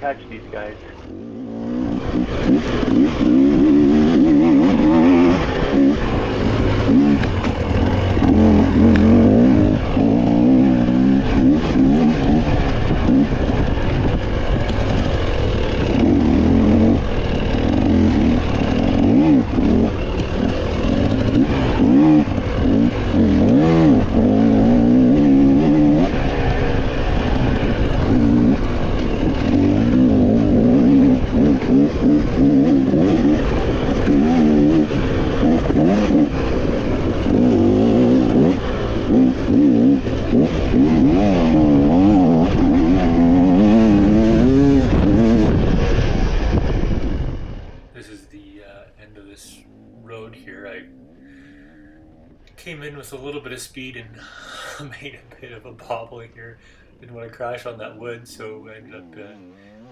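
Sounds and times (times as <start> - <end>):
dirt bike engine revving: 0.0 - 48.3.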